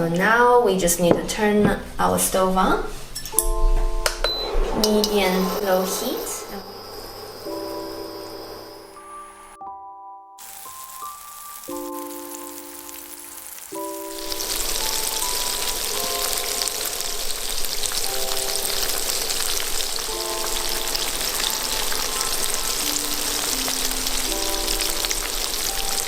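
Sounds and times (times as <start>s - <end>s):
chicken deep-frying in oil: 10.4s - 26.0s.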